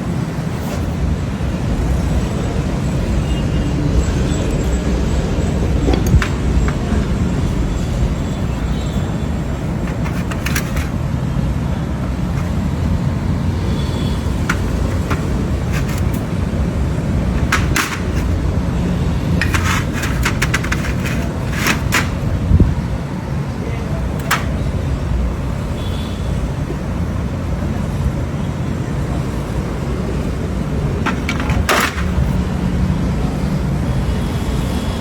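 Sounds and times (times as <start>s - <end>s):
sharp clicks and knocks: 5.8s - 7.2s, 9.8s - 11.1s, 14.4s - 16.6s, 17.3s - 18.5s, 19.3s - 22.6s, 24.2s - 24.7s, 31.0s - 32.4s.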